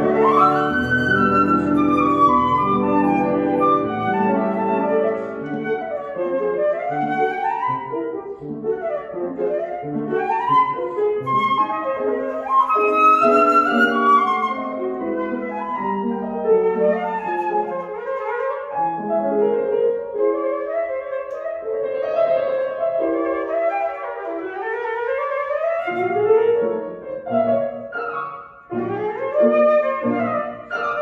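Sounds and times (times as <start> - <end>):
flute playing quick runs: 0.0 - 19.0
piano accompaniment: 0.0 - 31.0.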